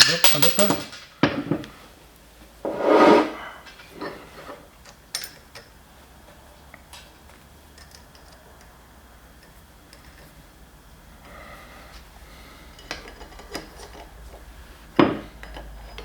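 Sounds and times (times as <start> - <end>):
metal parts clicking: 0.0 - 1.0.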